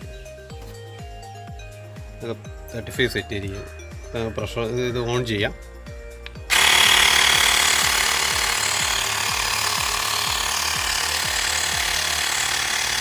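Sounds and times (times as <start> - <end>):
electric air compressor running: 6.5 - 13.0.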